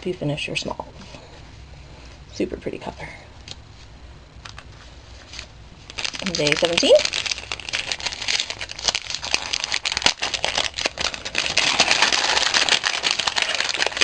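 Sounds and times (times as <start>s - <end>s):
packaging crinkling and rustling: 4.4s - 14.0s.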